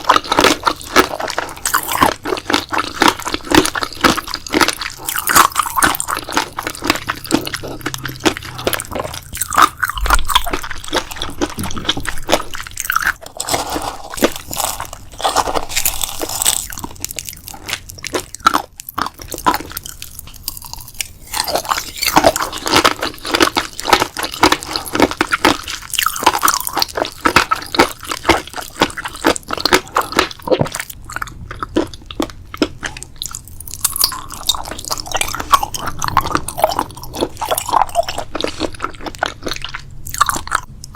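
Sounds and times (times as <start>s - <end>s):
crunchy food being chewed: 0.0s - 40.9s.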